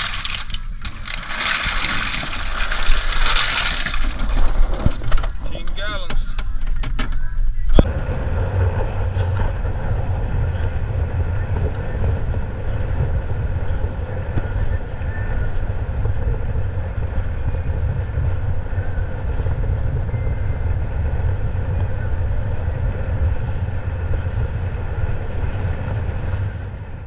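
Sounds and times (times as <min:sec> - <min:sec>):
water noise: 0:00.0 - 0:05.4
wind: 0:00.0 - 0:27.0
boat engine drone: 0:07.8 - 0:27.0.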